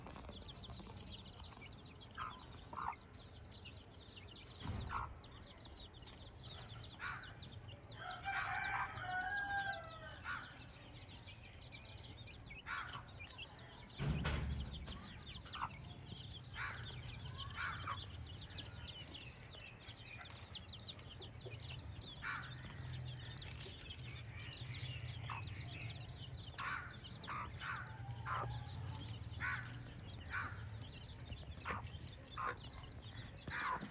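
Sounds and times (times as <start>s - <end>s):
chickens clucking: 0.0s - 5.4s, 12.0s - 33.9s
rooster crowing: 8.0s - 10.2s.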